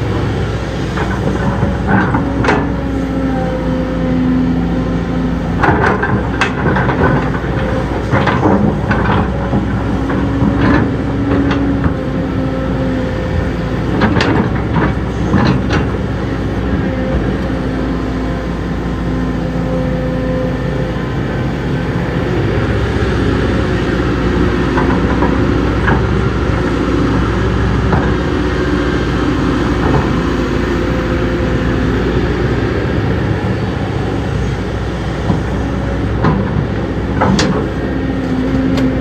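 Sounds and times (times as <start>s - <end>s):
diesel engine running: 0.0s - 39.0s
metallic clanks and knocks: 5.6s - 12.0s, 36.1s - 37.8s.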